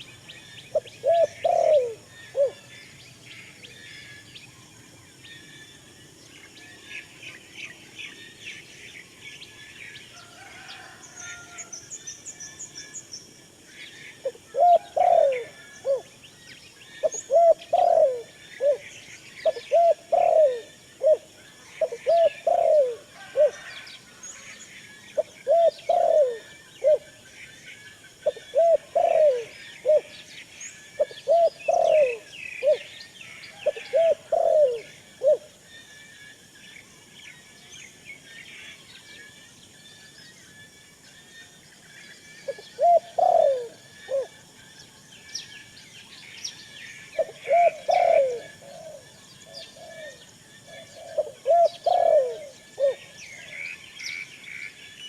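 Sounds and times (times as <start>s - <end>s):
small birds chirping: 0.0s - 55.0s
dove cooing: 0.7s - 2.8s, 14.2s - 16.1s, 17.0s - 23.8s, 25.2s - 27.1s, 28.2s - 30.2s, 30.9s - 35.5s, 42.5s - 44.4s, 47.2s - 53.6s.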